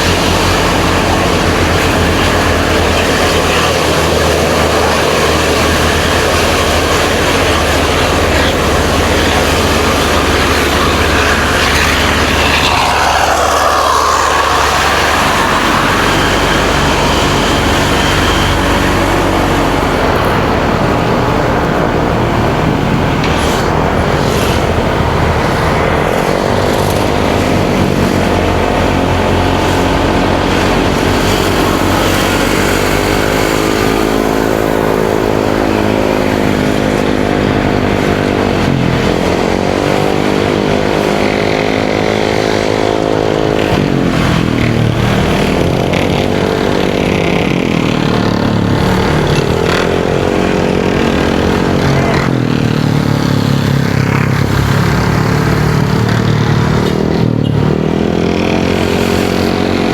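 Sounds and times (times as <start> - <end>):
motorcycle engine accelerating: 0.0 - 59.9
wind and road noise: 0.0 - 59.9.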